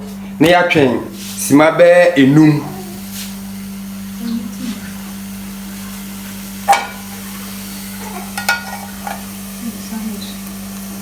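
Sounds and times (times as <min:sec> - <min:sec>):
steady low hum: 0:06.4 - 0:09.7
metal cookware clinking: 0:06.7 - 0:09.4.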